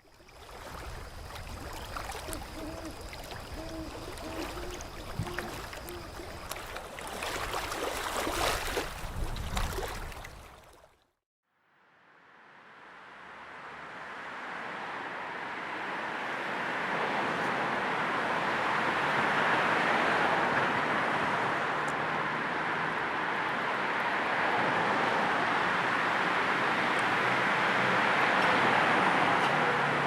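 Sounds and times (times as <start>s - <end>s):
car road noise: 12.3s - 30.0s.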